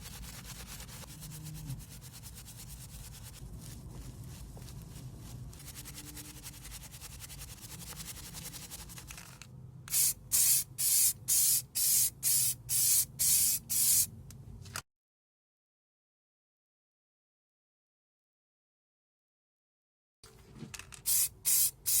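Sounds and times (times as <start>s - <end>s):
sanding scratchy rubbing: 0.0s - 9.0s
spray can hissing: 9.9s - 14.1s, 21.0s - 22.0s.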